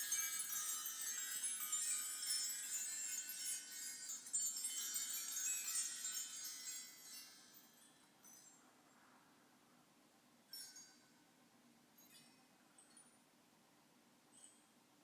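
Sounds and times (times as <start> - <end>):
metal chimes tinkling: 0.0 - 9.0, 10.5 - 11.3, 12.0 - 13.2.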